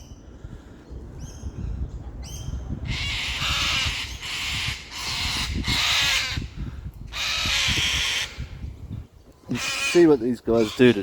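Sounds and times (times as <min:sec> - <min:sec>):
large birds screeching: 0:02.3 - 0:08.6, 0:09.4 - 0:11.0.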